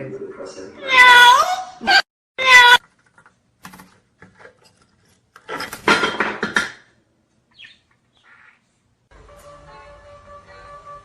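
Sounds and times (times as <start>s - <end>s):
parrot calling: 0.8s - 2.8s, 7.5s - 8.7s.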